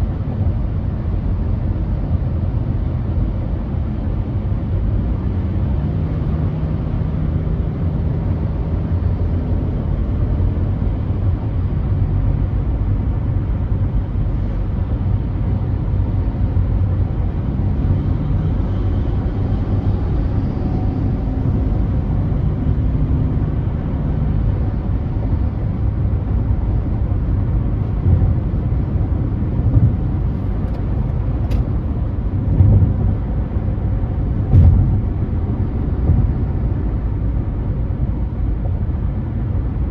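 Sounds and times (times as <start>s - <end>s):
faint engine hum: 0.0s - 39.9s
tyre and road rumble: 26.8s - 37.8s.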